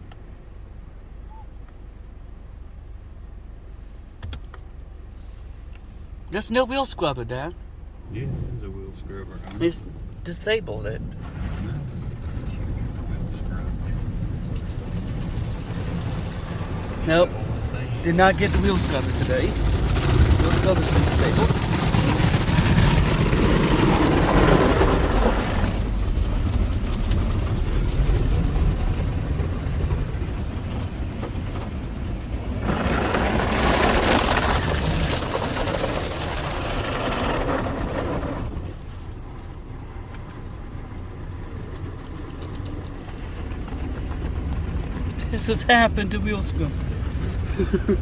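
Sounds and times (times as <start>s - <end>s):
car wash water spray: 2.1s - 39.3s.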